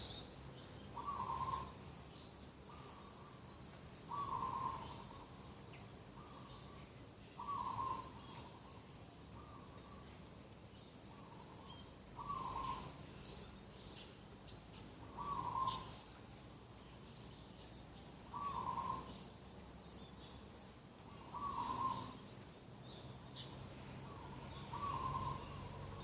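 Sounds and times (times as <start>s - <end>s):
small birds chirping: 0.0s - 26.0s
dove cooing: 1.0s - 1.8s, 4.1s - 5.2s, 7.4s - 8.8s, 12.2s - 13.0s, 15.1s - 16.0s, 18.3s - 19.2s, 21.1s - 22.2s, 24.0s - 25.6s.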